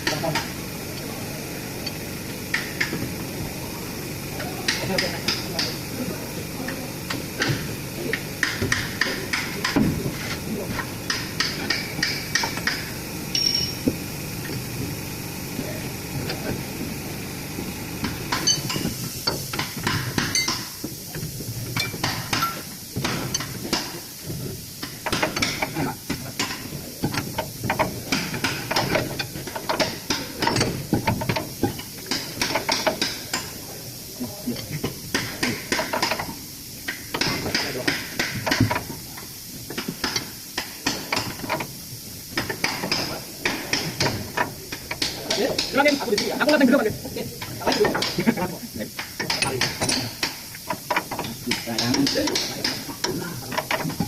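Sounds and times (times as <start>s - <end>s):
hand tools clicking on metal: 8.1s - 14.7s, 18.0s - 20.8s, 49.0s - 54.0s.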